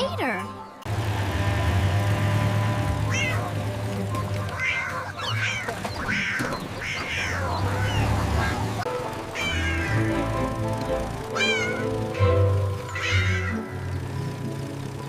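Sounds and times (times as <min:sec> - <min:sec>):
background music: 0:00.0 - 0:05.9, 0:07.5 - 0:15.0
cat meowing: 0:03.1 - 0:03.5, 0:04.5 - 0:08.6, 0:09.4 - 0:10.1, 0:11.4 - 0:11.9, 0:13.0 - 0:13.6.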